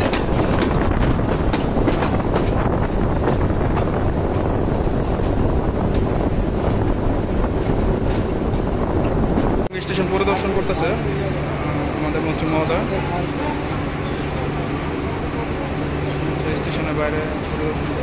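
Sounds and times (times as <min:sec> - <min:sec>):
wind rushing over microphone: 0:00.0 - 0:09.7
moving passenger train: 0:00.0 - 0:18.0.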